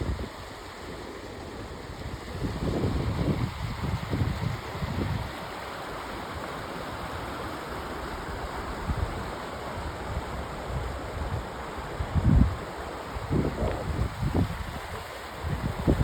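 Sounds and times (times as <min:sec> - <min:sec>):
river water rushing: 0:00.0 - 0:16.0
wind buffeting microphone: 0:02.0 - 0:05.4, 0:12.0 - 0:16.0.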